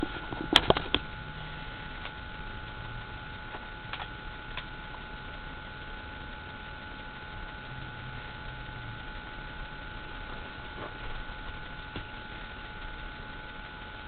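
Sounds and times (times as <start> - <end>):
thin high hum: 0.0 - 14.0
faint ticks: 2.0 - 10.3.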